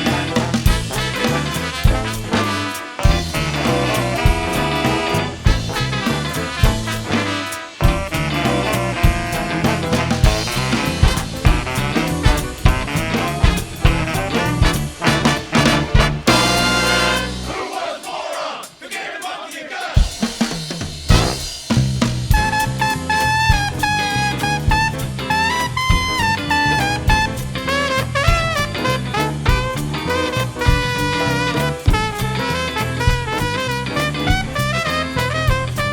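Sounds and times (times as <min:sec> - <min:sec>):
big band playing swing: 0:00.0 - 0:35.9
long held horn notes: 0:00.2 - 0:17.6.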